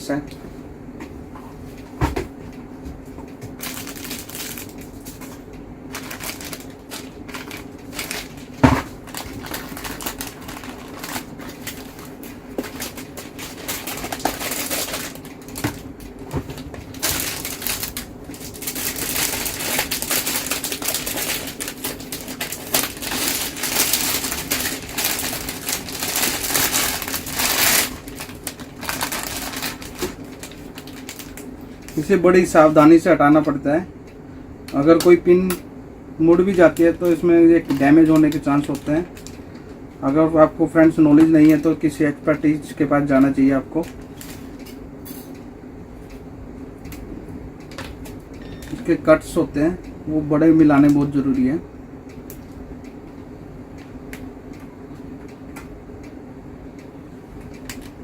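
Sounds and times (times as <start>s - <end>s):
rustling plastic and cardboard: 3.5s - 32.1s.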